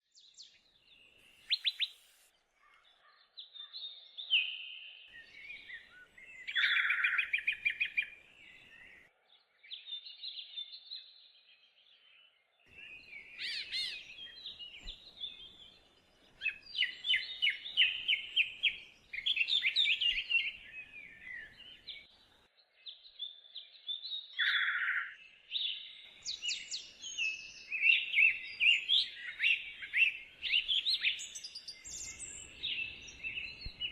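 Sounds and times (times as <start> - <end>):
songbirds singing: 0.0 - 33.9.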